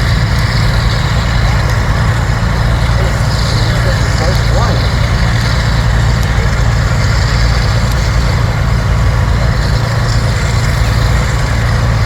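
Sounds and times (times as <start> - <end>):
large engine droning: 0.0 - 12.0.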